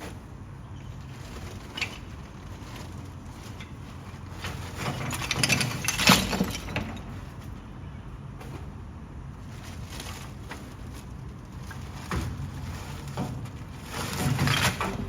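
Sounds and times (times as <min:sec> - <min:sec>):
clattering and cracking: 0:01.0 - 0:07.6, 0:09.4 - 0:15.0.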